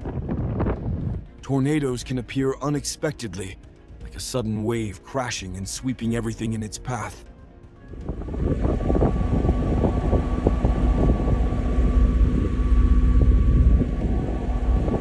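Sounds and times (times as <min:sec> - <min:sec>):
wind buffeting microphone: 0:00.0 - 0:01.3, 0:07.9 - 0:15.0.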